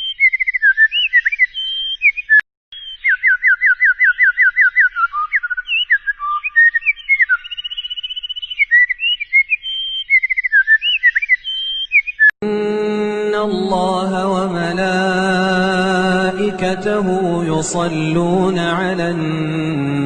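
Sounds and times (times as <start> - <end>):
songbird singing: 0.0 - 12.3.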